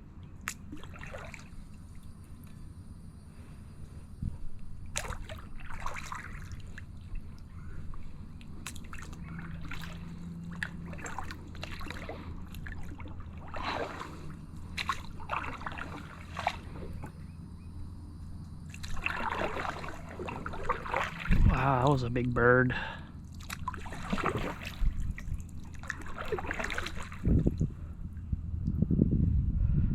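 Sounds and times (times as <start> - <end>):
kayak paddle swishing: 4.3 - 17.2, 18.7 - 21.6, 23.3 - 27.7
water dripping off paddle: 4.9 - 17.1, 18.7 - 21.5, 23.2 - 27.2.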